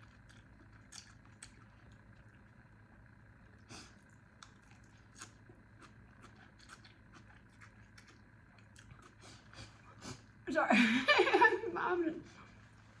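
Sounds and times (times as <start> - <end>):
chewing noodles: 0.0 - 2.6, 3.7 - 10.3
low steady hum: 0.0 - 13.0.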